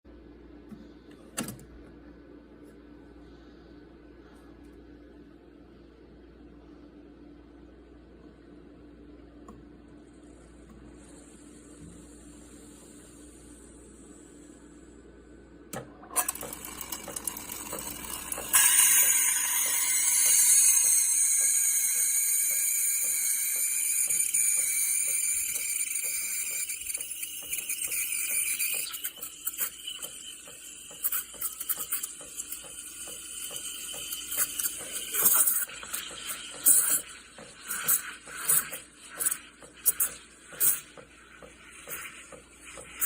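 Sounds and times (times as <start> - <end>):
espresso machine hissing: 10.2 - 15.0, 16.2 - 43.0.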